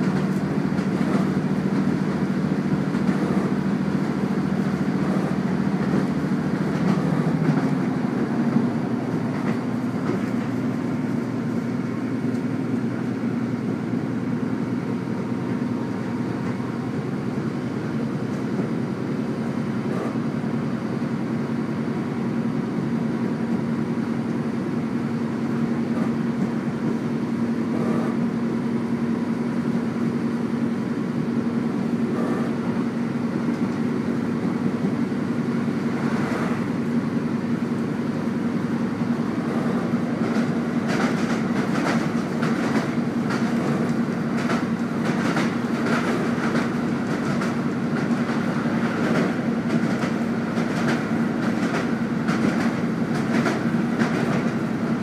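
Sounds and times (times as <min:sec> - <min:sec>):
wheels knocking on rail joints: 0:00.0 - 0:11.2, 0:39.2 - 0:54.9
train engine hum: 0:00.0 - 0:55.0
wheels rumbling on track: 0:00.0 - 0:55.0.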